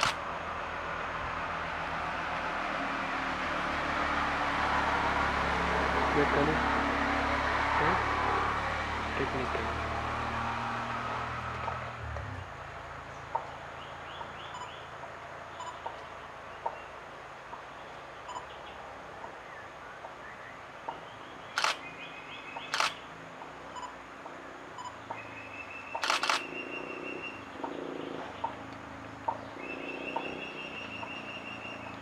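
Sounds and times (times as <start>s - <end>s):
camera shutter clicking: 0.0s - 0.2s, 21.6s - 21.8s, 22.7s - 23.0s, 26.0s - 26.5s
small birds chirping faintly: 11.5s - 32.0s
bird calling low tuk notes: 13.2s - 14.9s, 24.8s - 32.0s.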